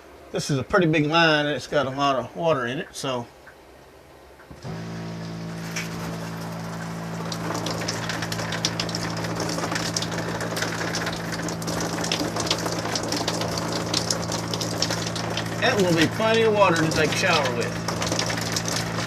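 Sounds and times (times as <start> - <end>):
steady droning hum: 0.0 - 19.0
shower head spraying water: 4.6 - 19.0.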